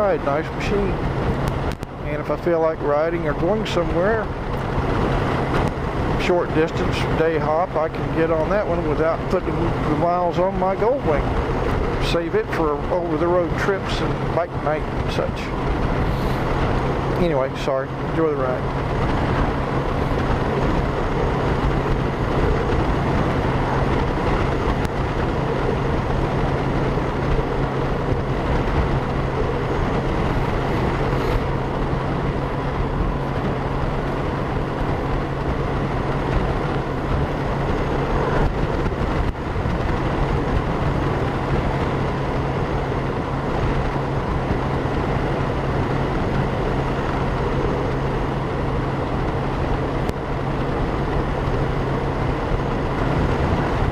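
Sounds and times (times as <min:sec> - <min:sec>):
motorcycle engine hum: 0:00.0 - 0:53.9
wind rushing over microphone: 0:00.0 - 0:53.9.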